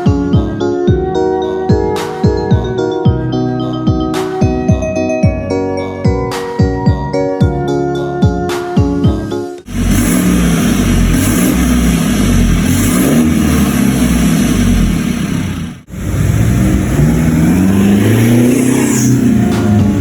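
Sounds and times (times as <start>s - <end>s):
car engine revving: 9.7s - 20.0s.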